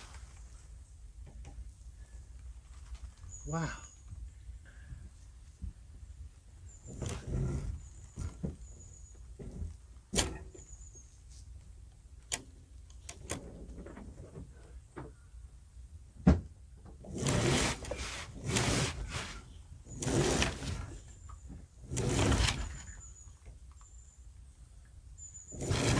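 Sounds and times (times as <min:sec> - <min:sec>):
rasping rushing noises: 0:17.1 - 0:21.0, 0:21.9 - 0:22.9, 0:25.6 - 0:25.9.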